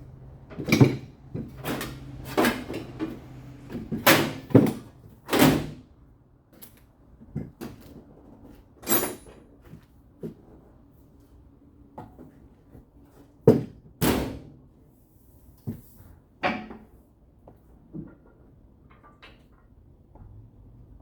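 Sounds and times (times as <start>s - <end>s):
metal knocks and clanks: 0.0s - 4.9s.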